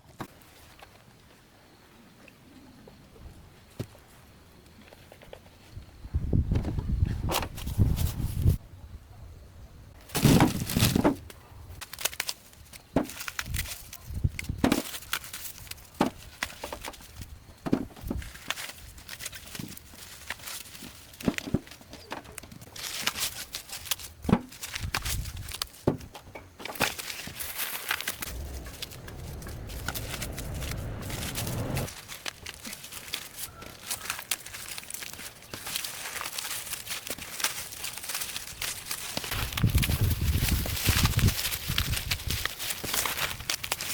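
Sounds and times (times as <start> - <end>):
rustling: 10.0 - 43.9.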